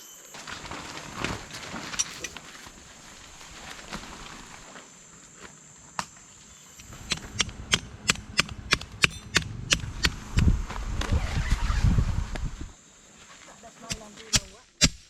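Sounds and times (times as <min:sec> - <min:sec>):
sharp knocks: 0:06.8 - 0:10.6
low rumble: 0:06.8 - 0:12.8.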